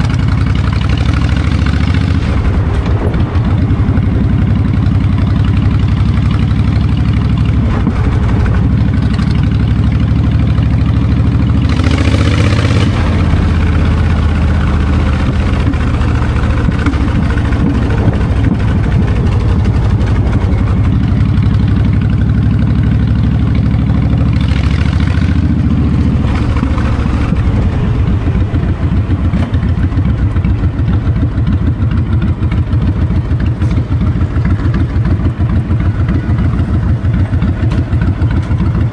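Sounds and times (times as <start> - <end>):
motorcycle engine running: 0.0 - 38.9
wind noise on microphone: 2.0 - 5.3, 12.6 - 21.2, 25.8 - 32.4.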